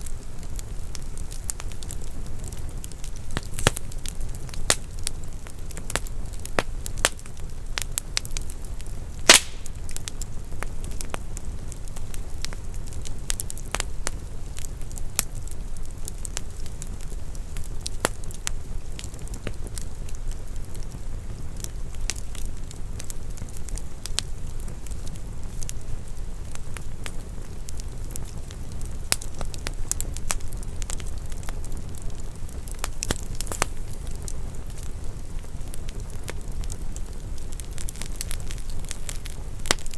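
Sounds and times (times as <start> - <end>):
wood fire crackling: 0.0 - 39.9
loud fire pop: 9.2 - 10.0.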